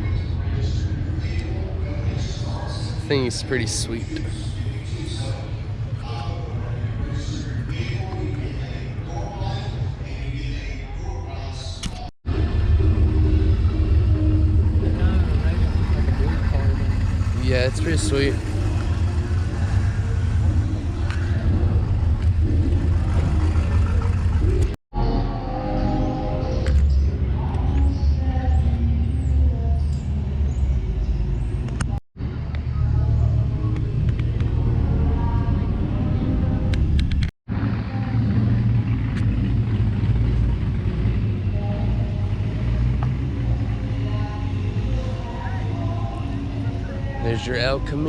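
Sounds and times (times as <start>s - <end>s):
car engine rumbling: 11.4s - 24.8s, 26.4s - 48.0s
car engine idling: 12.3s - 24.8s.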